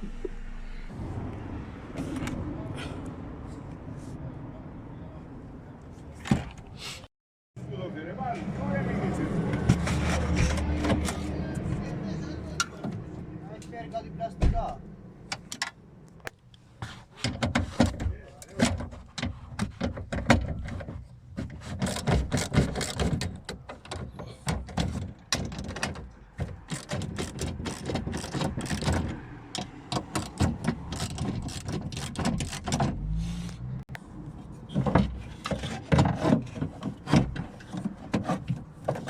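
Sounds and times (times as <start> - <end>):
low hum: 0.0 - 2.0.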